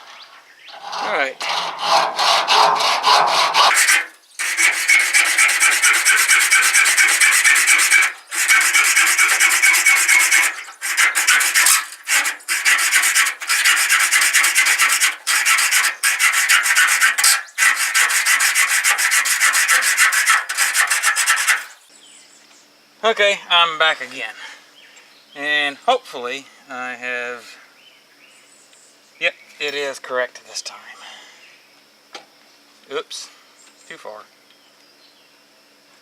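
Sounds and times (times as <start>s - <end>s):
hacksaw cutting steel: 0.7s - 21.8s.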